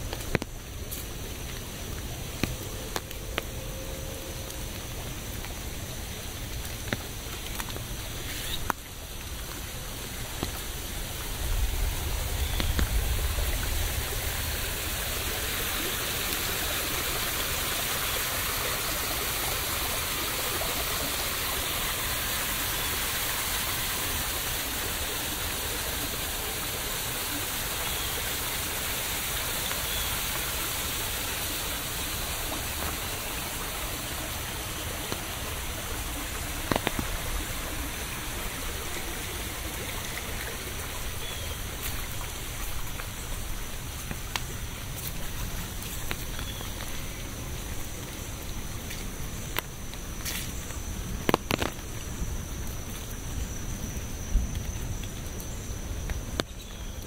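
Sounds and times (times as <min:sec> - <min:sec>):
rain falling: 0:00.0 - 0:57.0
low rumble: 0:11.0 - 0:15.6.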